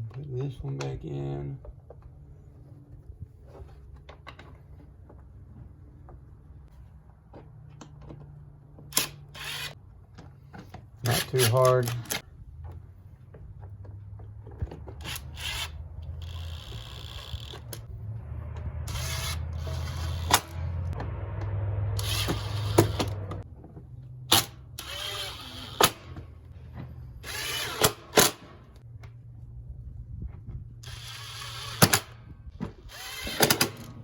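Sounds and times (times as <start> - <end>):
tool motor running: 9.0 - 9.8, 18.9 - 21.0, 22.0 - 23.4, 24.8 - 26.1, 27.2 - 28.6, 30.8 - 32.1, 32.8 - 34.0
low hum: 12.0 - 27.8.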